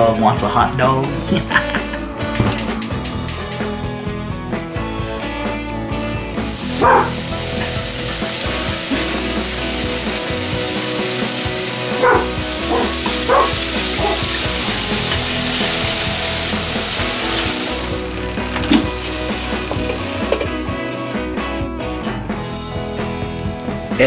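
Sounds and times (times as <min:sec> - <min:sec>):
hot dogs sizzling in a frying pan: 0:06.3 - 0:20.7
dog barking: 0:06.7 - 0:07.2, 0:11.9 - 0:14.3.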